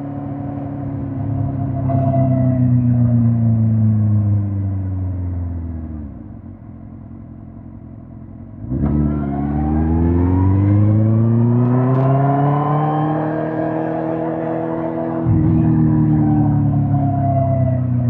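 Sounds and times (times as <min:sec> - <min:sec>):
motorcycle engine revving: 0:08.6 - 0:18.0.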